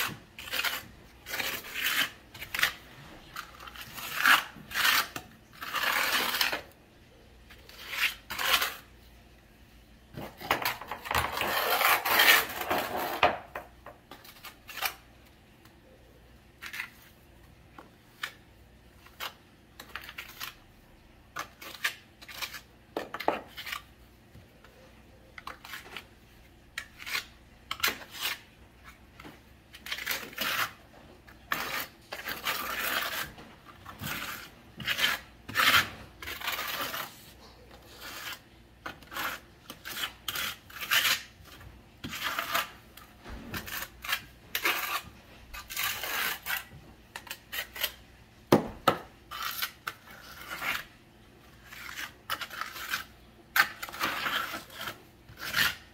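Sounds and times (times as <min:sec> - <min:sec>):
hand tools scraping on tile: 0:00.0 - 0:06.8, 0:07.6 - 0:08.9, 0:10.2 - 0:15.0, 0:29.8 - 0:48.0, 0:49.3 - 0:51.0, 0:51.6 - 0:55.9.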